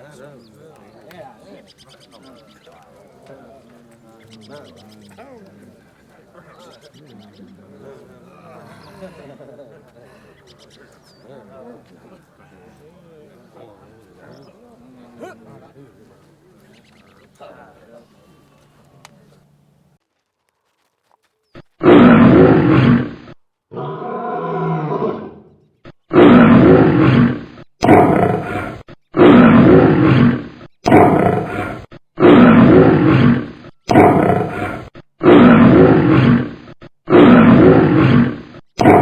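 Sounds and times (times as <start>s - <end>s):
animal call: 21.8s - 39.0s.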